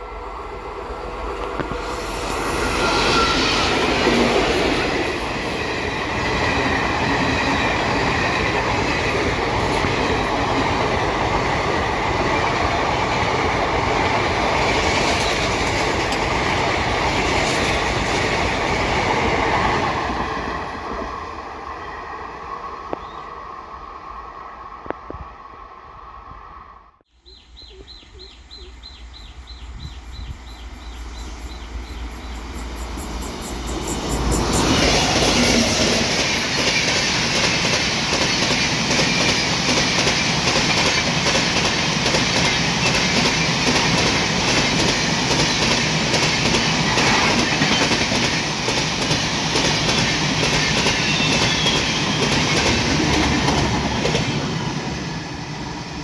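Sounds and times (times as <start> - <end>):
train passing at speed: 0.0 - 27.0, 28.2 - 56.0
wheels clacking over rail joints: 34.2 - 54.6.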